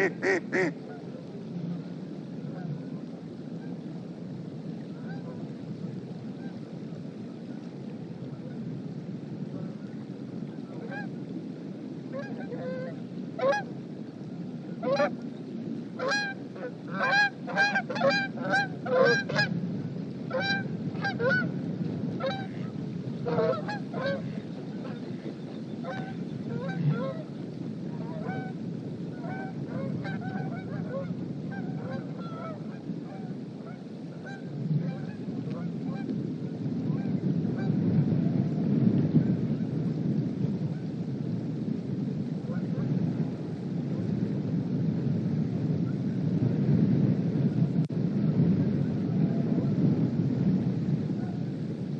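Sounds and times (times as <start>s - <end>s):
geese honking: 0.0s - 1.0s, 12.2s - 13.6s, 14.8s - 15.1s, 16.0s - 19.5s, 20.3s - 21.5s, 22.2s - 27.3s, 28.0s - 28.5s, 29.2s - 36.0s
wind on microphone: 0.0s - 51.9s.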